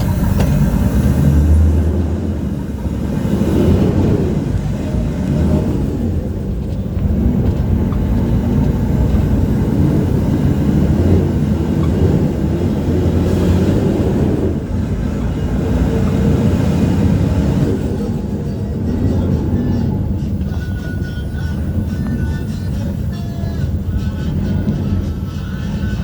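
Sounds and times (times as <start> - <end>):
bus engine and road noise: 0.0 - 26.0.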